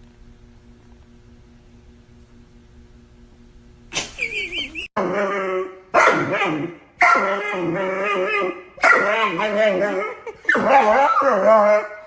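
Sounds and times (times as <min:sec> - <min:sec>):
dog whining: 0:04.6 - 0:12.0
dog howling: 0:05.0 - 0:12.0.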